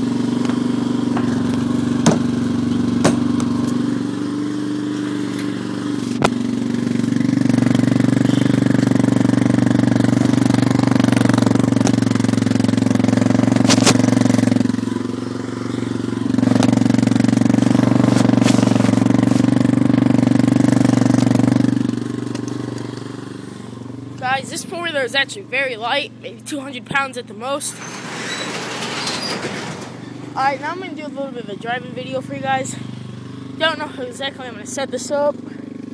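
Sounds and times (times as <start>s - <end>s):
atv engine running: 0.0s - 35.9s.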